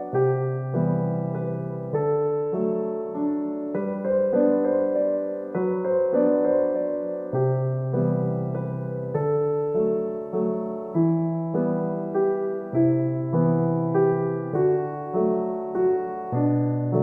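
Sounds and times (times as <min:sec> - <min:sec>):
slow solo piano piece: 0:00.0 - 0:17.0.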